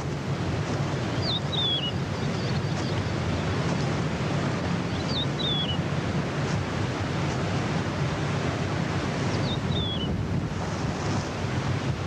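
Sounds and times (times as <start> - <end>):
rushing wind: 0.0 - 12.0
bird whistled call: 1.2 - 3.0, 4.9 - 5.8, 9.4 - 10.2.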